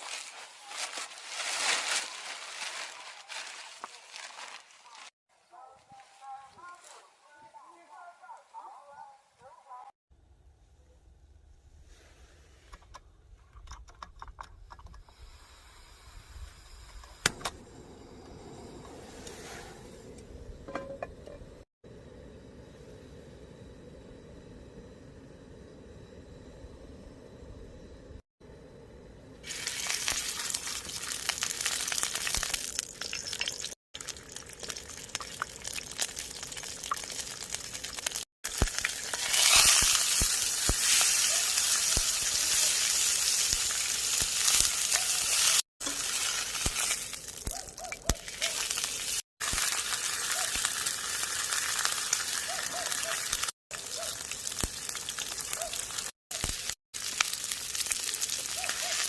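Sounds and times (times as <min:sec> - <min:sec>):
food sizzling in a pan: 0:29.4 - 0:59.0.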